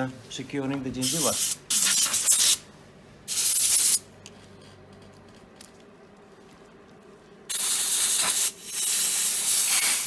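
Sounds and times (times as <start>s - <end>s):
hissing spray: 7.5s - 10.0s.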